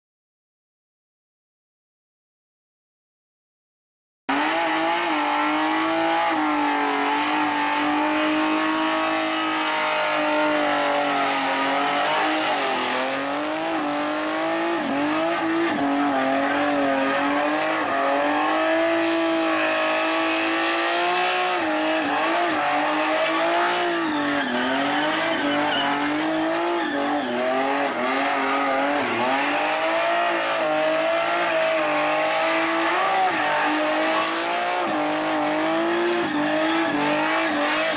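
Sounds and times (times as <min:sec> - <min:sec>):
car engine revving high: 0:04.3 - 0:37.9
tyres spinning and squealing: 0:04.4 - 0:20.3, 0:21.4 - 0:37.9.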